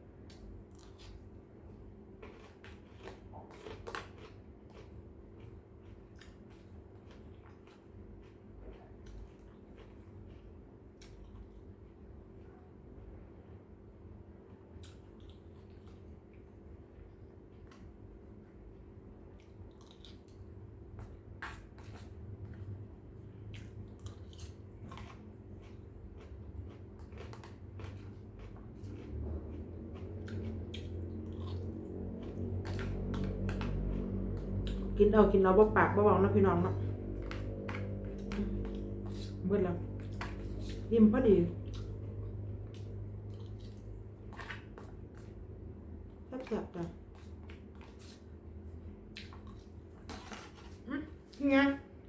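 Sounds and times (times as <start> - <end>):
faint steady hum: 0.0 - 52.0
person chewing crunchy food: 0.3 - 12.0, 19.3 - 22.8, 23.4 - 35.0, 36.8 - 40.9, 41.5 - 46.2, 47.0 - 50.9.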